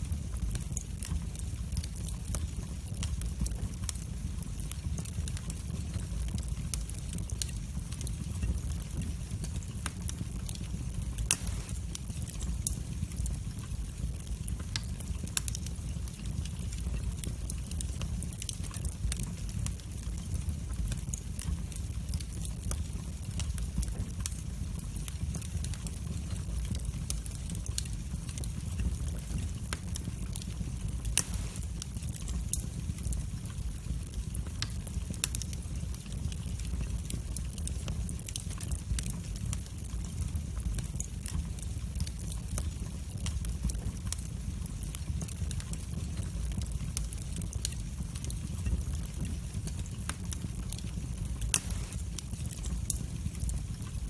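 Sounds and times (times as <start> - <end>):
fire crackling: 0.0 - 54.0
wood fire rumbling: 0.0 - 54.0
sharp pop of fire: 11.3 - 12.0, 31.2 - 32.0, 51.5 - 52.2.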